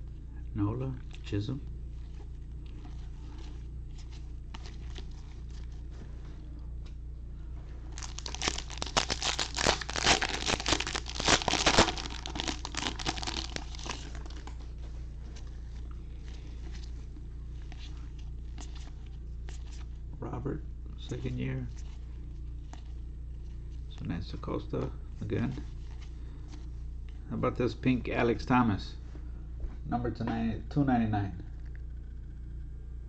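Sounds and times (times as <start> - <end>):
foil wrapper crinkling and tearing: 7.9 - 14.6.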